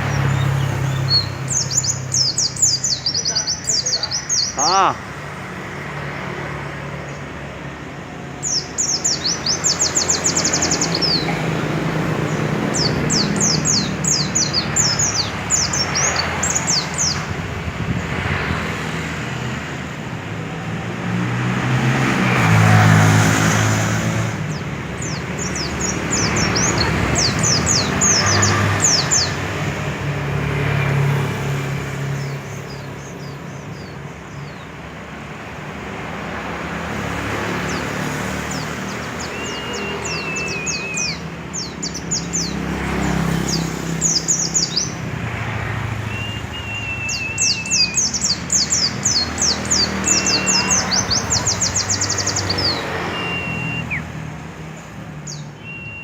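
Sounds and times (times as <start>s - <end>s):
songbird chirping: 0.0s - 5.0s, 36.7s - 56.0s
steady traffic noise: 0.0s - 56.0s
vehicle passing: 20.7s - 33.4s, 35.3s - 55.6s.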